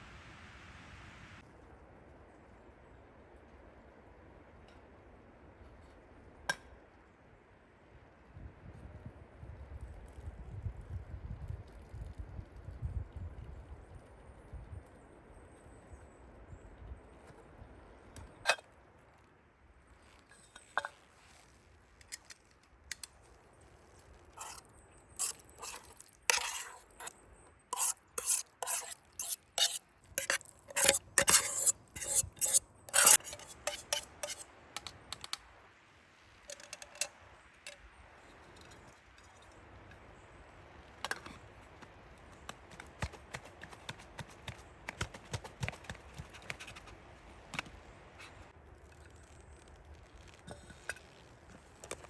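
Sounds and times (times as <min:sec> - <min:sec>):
metal utensil scraping cookware: 0:24.4 - 0:24.6, 0:25.2 - 0:27.1, 0:27.7 - 0:35.2, 0:36.5 - 0:37.8.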